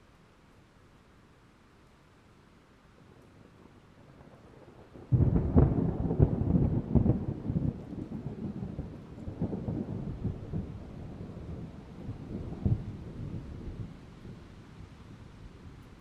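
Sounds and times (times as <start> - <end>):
rain: 0.0 - 16.0
thunder rumbling: 4.0 - 15.3.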